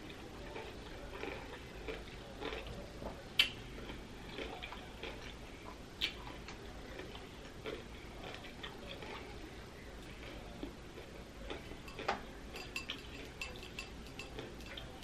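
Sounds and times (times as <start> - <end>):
crunchy chewing: 0.0 - 15.0
sharp mouth clicks: 3.4 - 3.6, 6.0 - 6.2.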